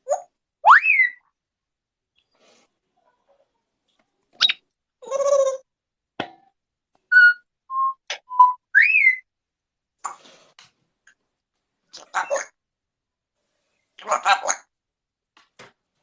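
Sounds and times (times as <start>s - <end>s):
parrot squawk: 0.1s - 1.2s, 8.8s - 9.2s, 12.0s - 12.6s, 14.0s - 14.7s
parrot whistling: 7.1s - 9.2s.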